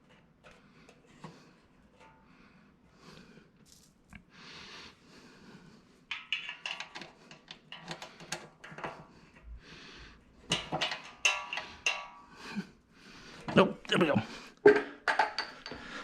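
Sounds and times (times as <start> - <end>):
metal parts clicking and rattling: 6.1 - 9.1, 10.5 - 12.2.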